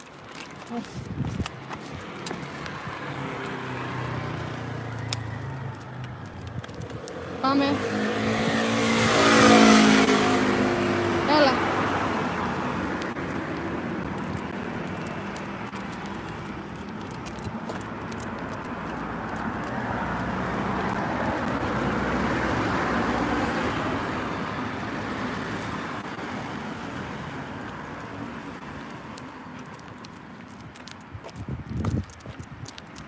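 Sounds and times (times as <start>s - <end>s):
vehicle rushing past: 6.8s - 13.1s.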